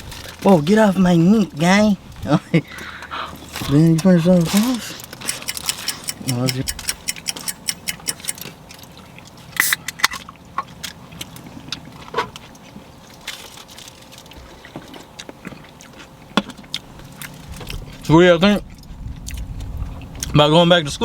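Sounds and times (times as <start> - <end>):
person chewing food: 7.0 - 20.3.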